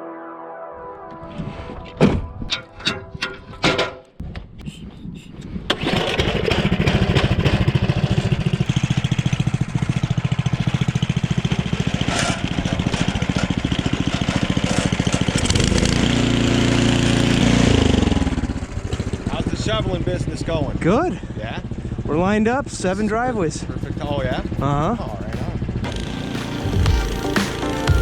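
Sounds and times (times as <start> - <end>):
clicks and knocks: 2.0 - 4.5
snowblower engine running: 5.7 - 22.1, 25.6 - 28.0.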